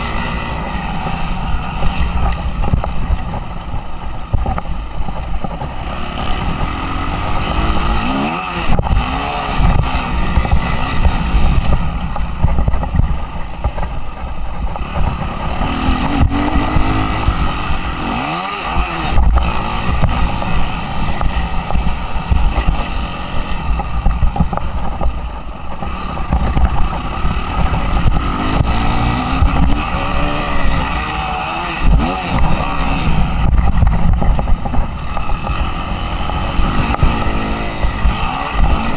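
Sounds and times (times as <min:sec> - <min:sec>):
motocross engine revving: 0:00.0 - 0:04.7, 0:05.5 - 0:13.9, 0:14.6 - 0:38.9
wind noise on microphone: 0:00.0 - 0:38.9.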